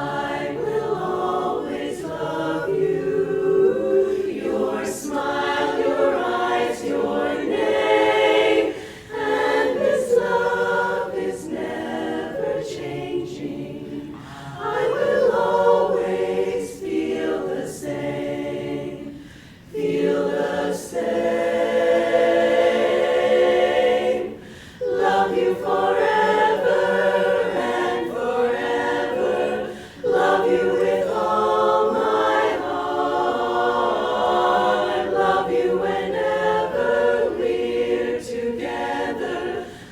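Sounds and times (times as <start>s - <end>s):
a cappella chorus singing: 0.0s - 39.9s
singers breathing: 8.7s - 9.2s, 14.1s - 14.6s, 19.1s - 19.8s, 24.3s - 24.9s, 29.6s - 30.1s, 39.6s - 39.9s.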